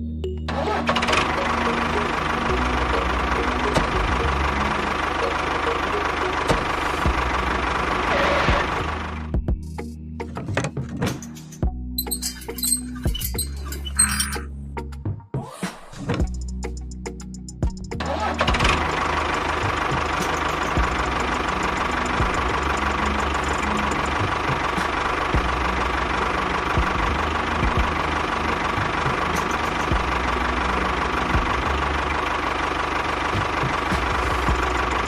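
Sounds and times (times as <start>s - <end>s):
small motor running: 19.4s - 25.5s.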